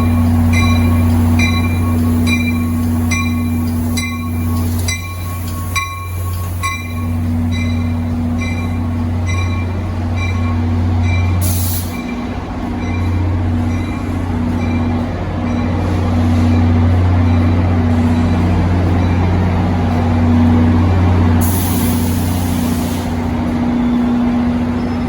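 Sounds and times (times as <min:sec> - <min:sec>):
locomotive bell ringing: 0:00.0 - 0:21.2
locomotive engine humming: 0:00.0 - 0:25.0
air hiss: 0:11.4 - 0:12.1, 0:21.4 - 0:23.3.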